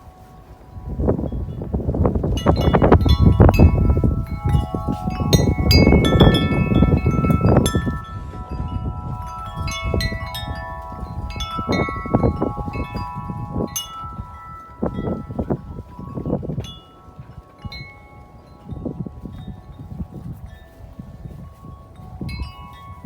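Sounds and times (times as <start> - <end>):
wind buffeting microphone: 0.0 - 23.0
wind chime ringing: 0.0 - 23.0.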